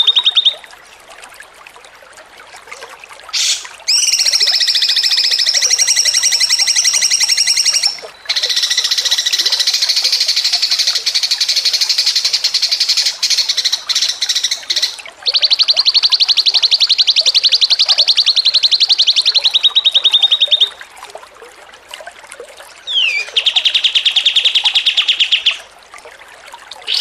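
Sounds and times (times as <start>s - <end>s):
songbird chattering trills: 0.0s - 0.6s, 3.4s - 20.8s, 22.9s - 25.7s.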